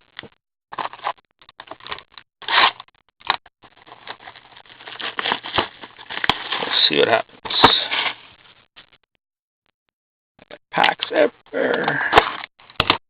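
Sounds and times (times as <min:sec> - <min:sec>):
plastic wrap and cardboard tearing: 0:01.7 - 0:02.8, 0:03.7 - 0:08.1.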